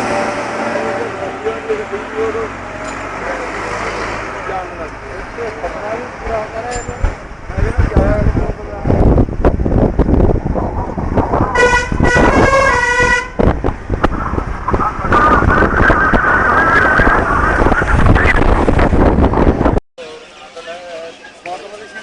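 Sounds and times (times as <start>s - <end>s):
vehicle rumbling: 0.0s - 22.0s
multi-note horn: 11.5s - 13.4s.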